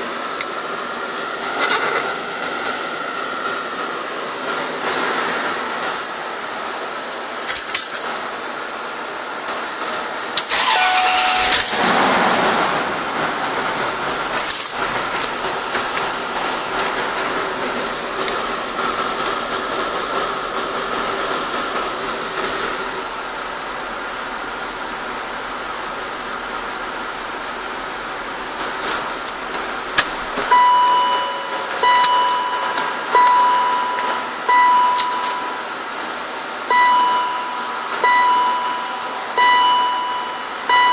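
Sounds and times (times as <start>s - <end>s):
car engine running: 10.0s - 40.9s
car engine cranking: 10.3s - 35.5s
warning beeps: 10.5s - 12.6s, 30.5s - 35.6s, 36.7s - 40.9s.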